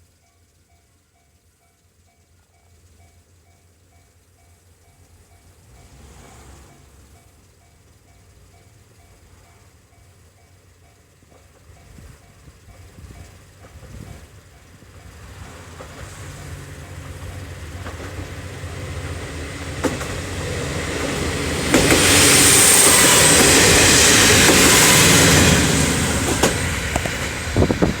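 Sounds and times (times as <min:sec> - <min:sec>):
diesel railcar passing: 0:00.2 - 0:28.0
wheels clacking over rail joints: 0:11.2 - 0:28.0.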